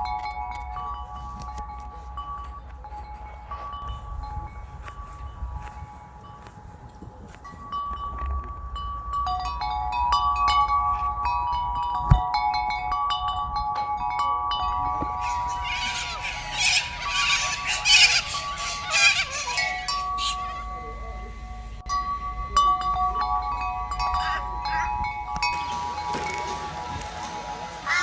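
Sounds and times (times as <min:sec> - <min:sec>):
chimes ringing: 0:00.0 - 0:28.0
harsh raspy calls: 0:15.0 - 0:21.7, 0:24.0 - 0:28.0.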